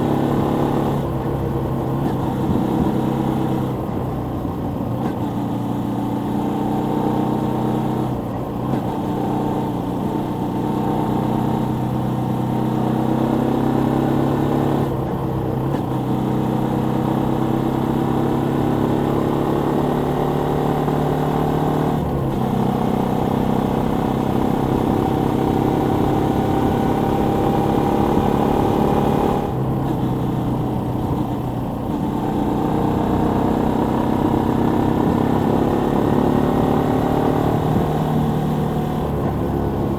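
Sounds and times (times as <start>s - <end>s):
motorcycle engine running: 14.9s - 39.9s.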